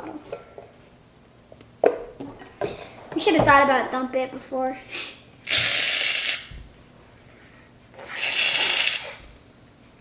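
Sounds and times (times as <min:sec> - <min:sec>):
aerosol can spraying: 0:05.5 - 0:06.6, 0:08.1 - 0:09.2.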